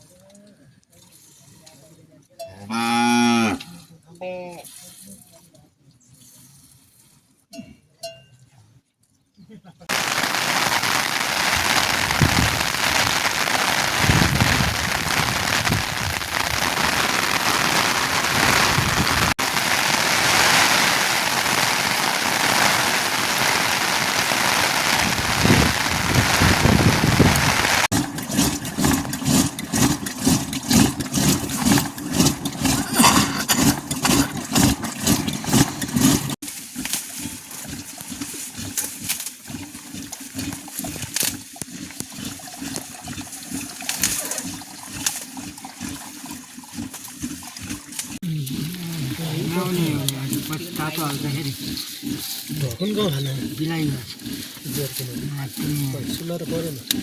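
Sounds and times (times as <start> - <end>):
rain falling: 9.9 - 34.3, 48.2 - 51.6.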